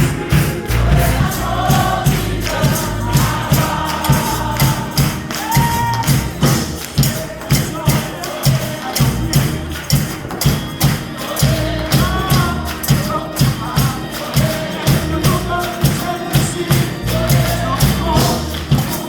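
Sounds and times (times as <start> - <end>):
congregation singing: 0.0 - 19.0
tambourine and percussion beat: 0.0 - 19.0.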